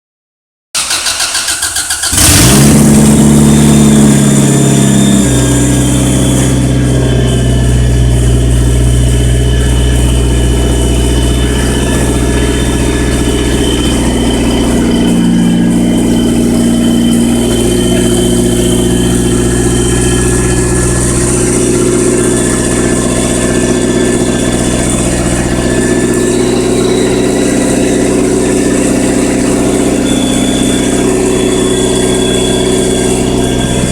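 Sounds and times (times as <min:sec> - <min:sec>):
starter motor cranking: 0:00.8 - 0:03.0
car engine starting and idling: 0:00.8 - 0:33.9.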